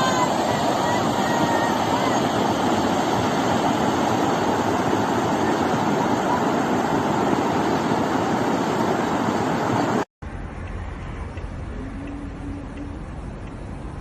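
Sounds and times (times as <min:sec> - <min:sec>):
floodwater rushing: 0:00.0 - 0:10.1.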